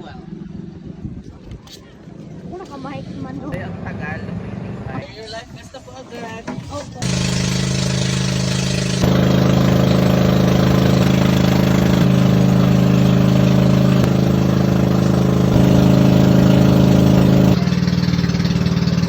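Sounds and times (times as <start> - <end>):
motorboat engine humming: 7.0 - 19.0.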